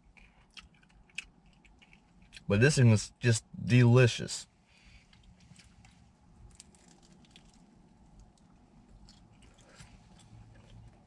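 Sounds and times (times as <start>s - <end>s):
mouth clicks and crunches: 0.0s - 2.5s, 5.1s - 11.0s
close-up chewing: 0.1s - 2.5s, 5.1s - 11.0s.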